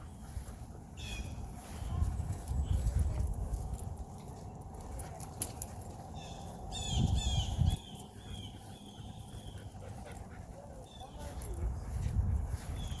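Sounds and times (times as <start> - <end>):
small bird chirping: 6.1 - 9.8.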